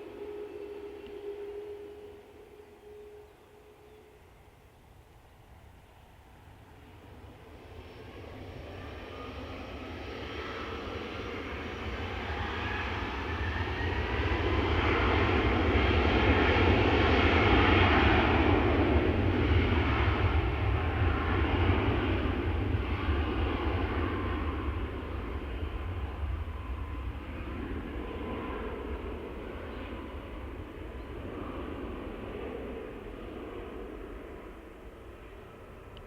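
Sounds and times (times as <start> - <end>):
airplane engines passing: 0.0 - 36.0.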